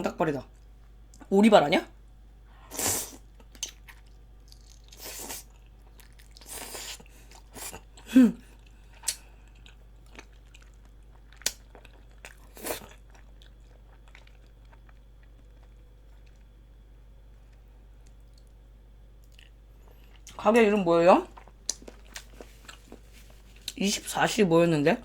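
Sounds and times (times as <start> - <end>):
person chewing and sucking: 2.7 - 8.0, 8.6 - 16.6, 21.3 - 23.8.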